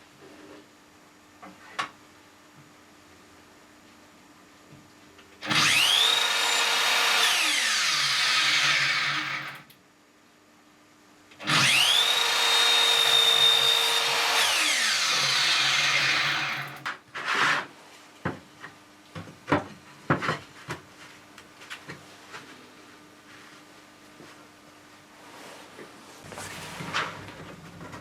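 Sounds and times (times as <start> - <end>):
electric power tool whining: 5.4 - 9.7, 11.4 - 16.9.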